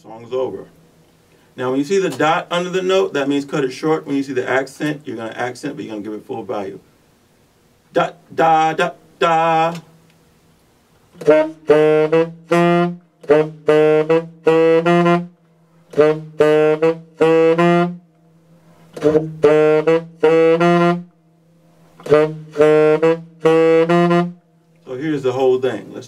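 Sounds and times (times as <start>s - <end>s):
saxophone playing funky riff: 7.9s - 9.8s, 11.1s - 18.1s, 18.9s - 21.2s, 22.0s - 24.4s.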